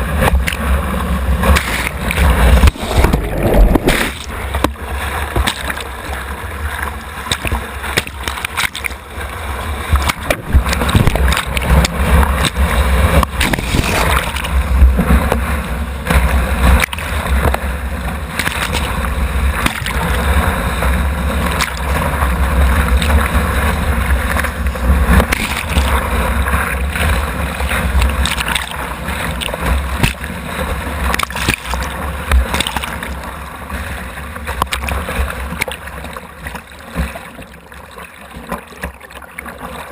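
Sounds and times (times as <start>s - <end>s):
whitewater rushing and splashing: 0.0s - 39.9s.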